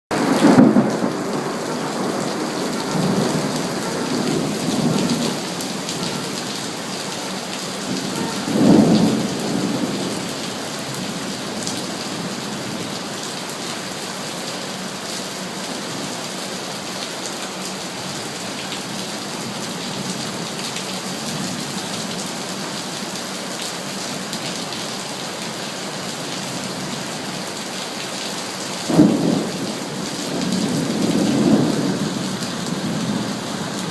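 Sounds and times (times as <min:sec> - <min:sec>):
thunder rumbling: 0:00.1 - 0:12.9, 0:28.9 - 0:33.9
heavy rain: 0:00.1 - 0:33.9.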